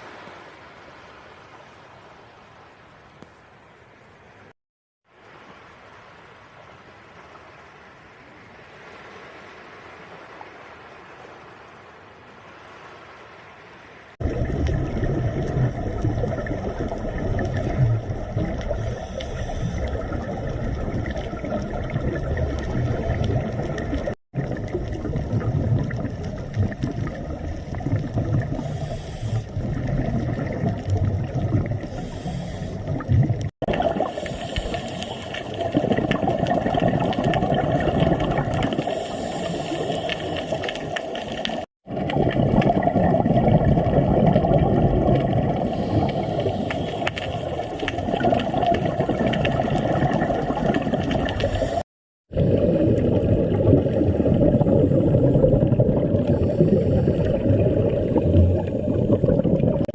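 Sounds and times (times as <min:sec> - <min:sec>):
rushing splashing water: 0:33.1 - 0:56.6.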